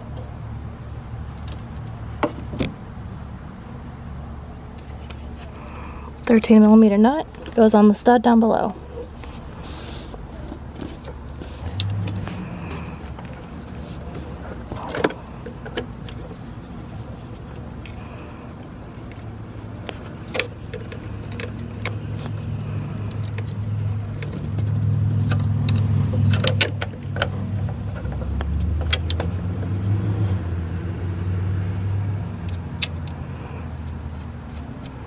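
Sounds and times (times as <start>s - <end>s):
vehicle engine humming: 0.0s - 35.0s.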